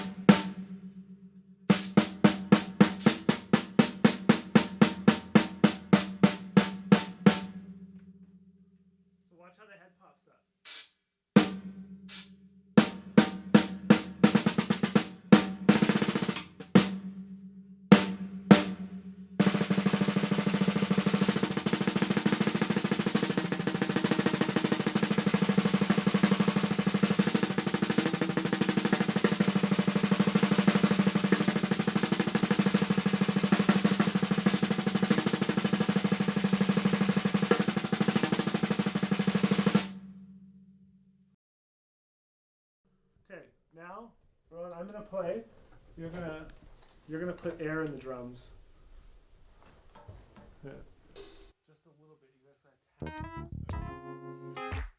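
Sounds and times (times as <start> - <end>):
fast drum roll: 0.0 - 0.7, 1.7 - 7.5, 11.4 - 17.0, 17.9 - 40.1.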